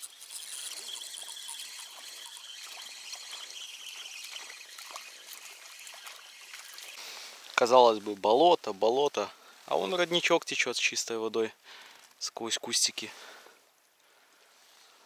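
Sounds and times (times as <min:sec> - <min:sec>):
spring water trickling: 0:00.0 - 0:08.9.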